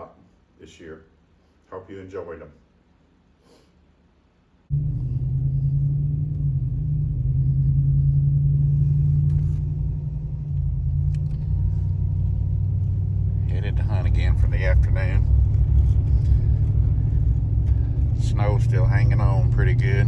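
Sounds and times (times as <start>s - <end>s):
car engine and road rumble: 4.7s - 20.0s.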